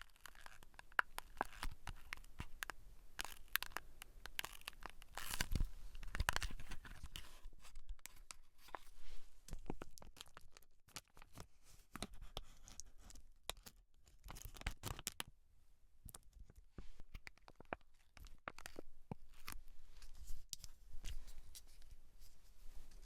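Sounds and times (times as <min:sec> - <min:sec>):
scratching and crackling of hair: 0:00.0 - 0:15.2.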